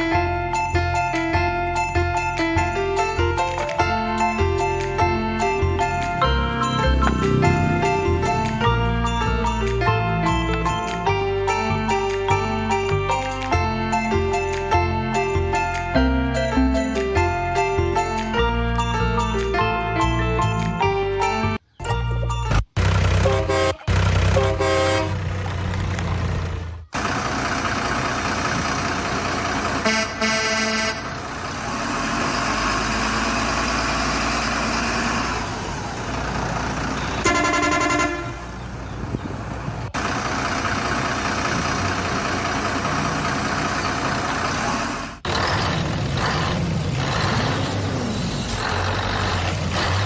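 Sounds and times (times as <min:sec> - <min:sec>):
heavy truck engine running: 0:00.0 - 0:50.0
truck horn blasts: 0:05.4 - 0:10.9, 0:22.8 - 0:25.4, 0:29.7 - 0:32.7, 0:37.0 - 0:38.6.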